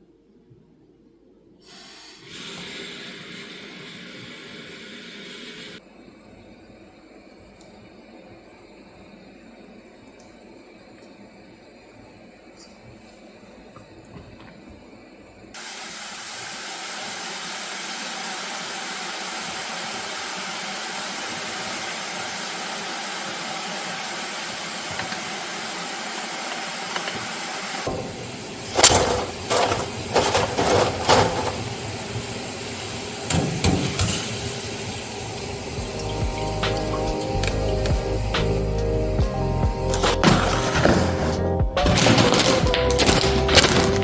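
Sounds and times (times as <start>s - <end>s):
steady hiss: 0.0s - 41.6s
knocks and clatters: 27.9s - 31.9s, 40.0s - 44.0s.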